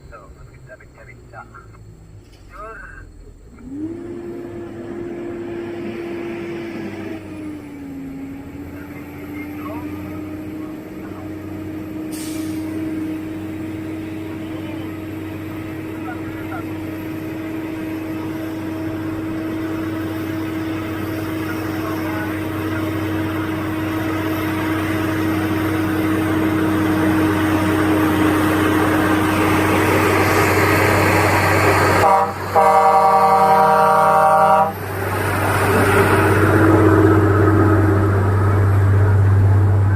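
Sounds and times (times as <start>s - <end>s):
truck engine running: 0.0s - 39.9s
truck horn: 9.8s - 38.7s.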